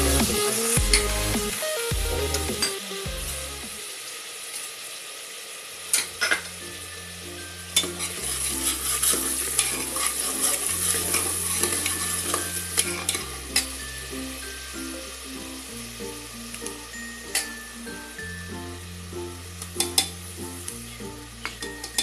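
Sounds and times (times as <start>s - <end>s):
spices sizzling in hot oil: 0.0s - 22.0s
ladle stirring and scraping: 7.8s - 13.7s.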